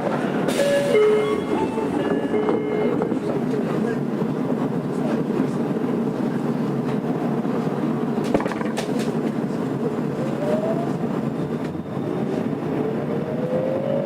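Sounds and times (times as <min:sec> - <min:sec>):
subway car wheels rumbling: 0:00.0 - 0:14.0.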